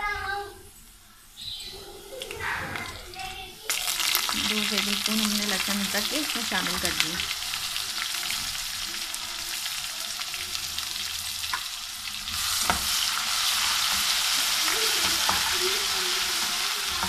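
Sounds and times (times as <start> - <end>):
onions sizzling in oil: 3.6 - 17.0.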